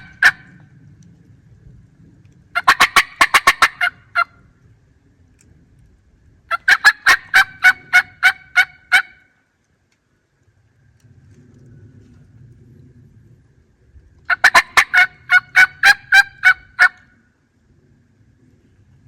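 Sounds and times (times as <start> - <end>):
turkey calls: 0.0 - 0.6, 2.6 - 4.4, 6.5 - 9.3, 14.3 - 17.1
faint low rumble: 0.0 - 6.6, 7.2 - 19.0.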